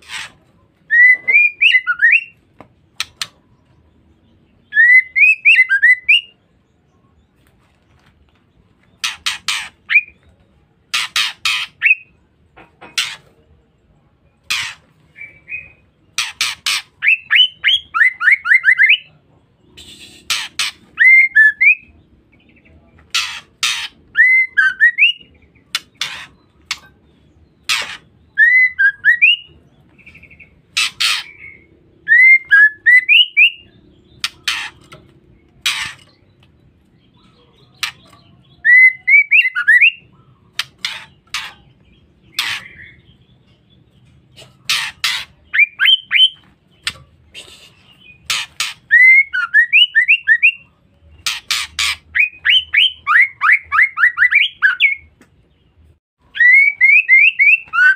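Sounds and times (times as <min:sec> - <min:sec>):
bird harsh rasping calls: 0:00.0 - 0:02.4, 0:09.0 - 0:10.2, 0:10.9 - 0:12.2, 0:12.9 - 0:13.4, 0:14.4 - 0:19.0, 0:19.7 - 0:21.9, 0:23.1 - 0:36.4, 0:37.3 - 0:55.1.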